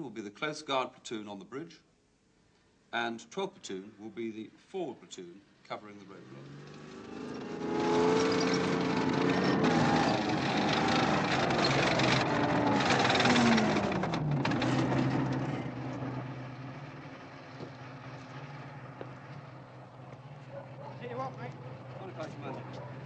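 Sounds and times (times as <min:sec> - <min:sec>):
heavy vehicle engine running: 0:06.7 - 0:23.0.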